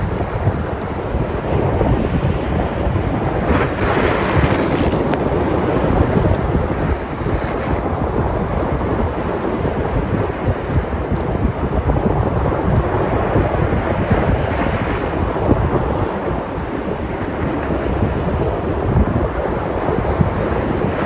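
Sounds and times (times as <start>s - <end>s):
waves breaking on shore: 0.0s - 21.0s
wind buffeting microphone: 0.0s - 21.0s.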